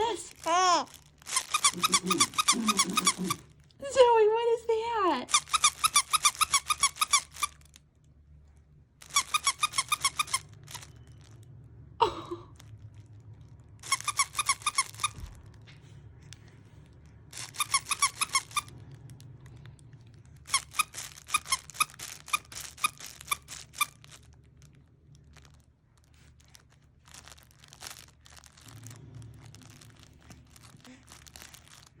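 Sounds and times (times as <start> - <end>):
rapid high-pitched squeaks: 0.4 - 3.4, 5.3 - 7.8, 9.0 - 11.4, 13.8 - 15.4, 17.3 - 18.8, 20.5 - 24.3
faint clicks and rustling: 14.9 - 32.0.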